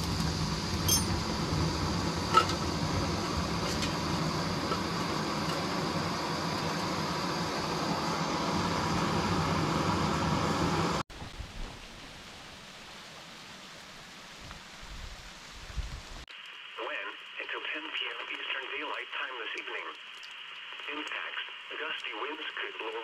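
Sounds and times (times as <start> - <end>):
steady rain hiss: 0.0 - 23.0
ticks of raindrops: 19.0 - 23.0.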